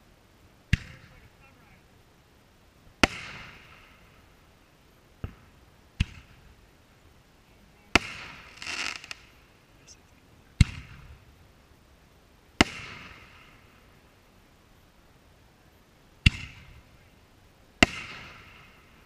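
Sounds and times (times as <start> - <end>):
firework shells banging: 7.9 - 9.3.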